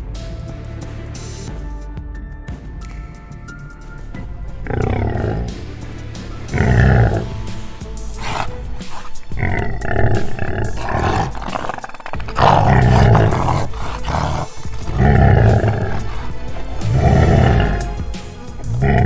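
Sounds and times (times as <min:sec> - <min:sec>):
background music: 0:00.0 - 0:19.0
lions growling and snarling: 0:04.5 - 0:19.0.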